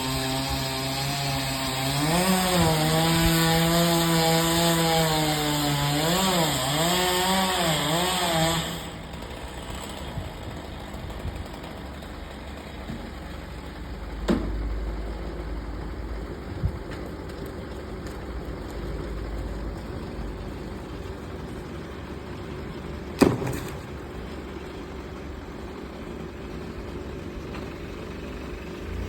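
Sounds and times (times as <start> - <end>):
chainsaw cutting wood: 0.0 - 14.6, 22.7 - 24.7
sharp knocks: 23.2 - 23.8.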